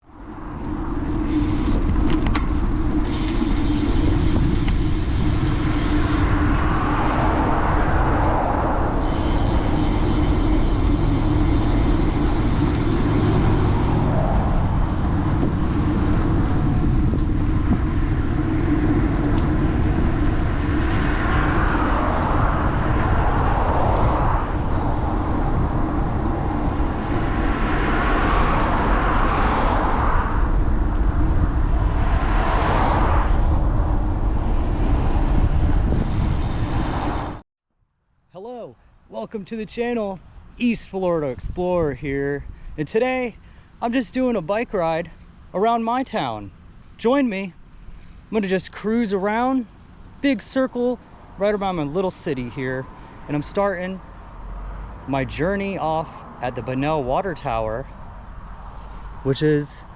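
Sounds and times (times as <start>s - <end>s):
wind noise: 0.0s - 37.4s, 40.0s - 44.6s
bicycle road rumble: 0.0s - 59.9s.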